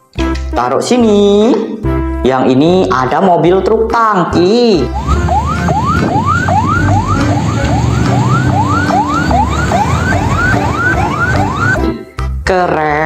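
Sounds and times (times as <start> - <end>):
low background beat: 4.4 - 12.5
siren rising sweeps: 4.8 - 11.9.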